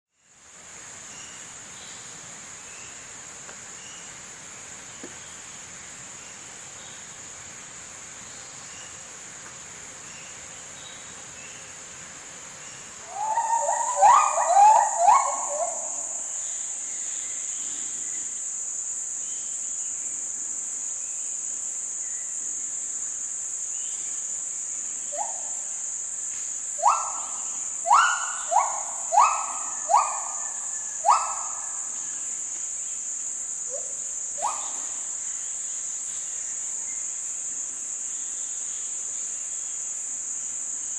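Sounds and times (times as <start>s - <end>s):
high insect chorus: 0.1s - 40.9s
gibbons hooting: 13.0s - 16.1s, 27.9s - 30.4s.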